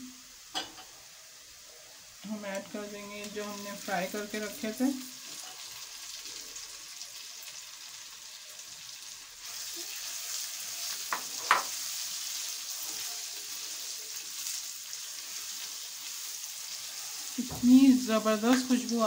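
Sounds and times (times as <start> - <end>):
vegetables sizzling in oil: 0.0 - 19.0
spatula scraping wok: 5.2 - 6.6, 9.5 - 17.7.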